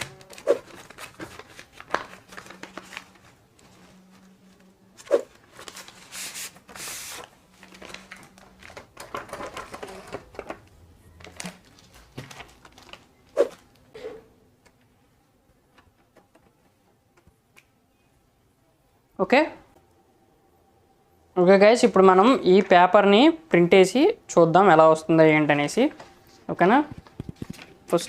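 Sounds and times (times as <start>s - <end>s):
paper rustling: 0.0s - 10.6s, 11.2s - 13.8s, 25.9s - 28.0s.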